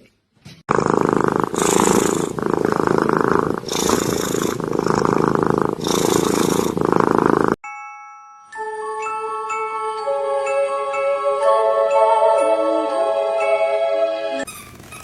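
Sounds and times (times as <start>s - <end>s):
cat purring loudly: 0.7s - 7.6s.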